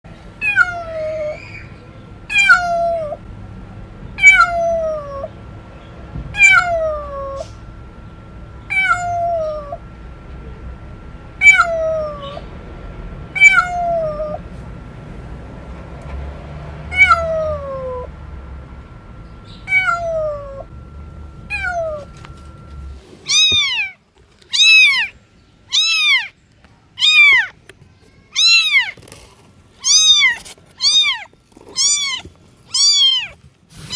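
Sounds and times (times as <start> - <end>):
steady background hum: 0.1 - 27.7
cats meowing loudly: 0.4 - 1.7, 2.3 - 3.2, 4.2 - 5.3, 6.4 - 7.6, 8.7 - 9.8, 11.4 - 12.4, 13.3 - 14.5, 16.9 - 18.1, 19.7 - 20.7, 21.5 - 22.1, 23.3 - 25.1, 25.7 - 26.3, 27.0 - 27.5, 28.3 - 29.0, 29.8 - 33.4.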